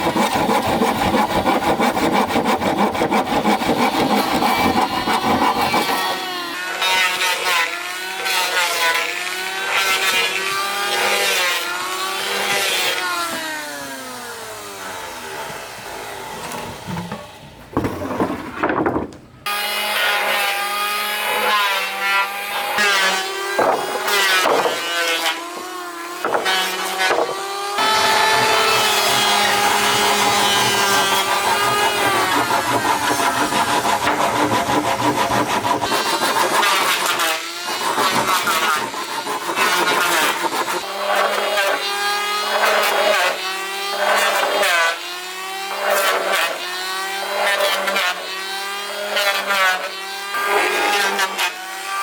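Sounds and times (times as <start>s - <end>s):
power saw cutting wood: 0.0s - 52.0s.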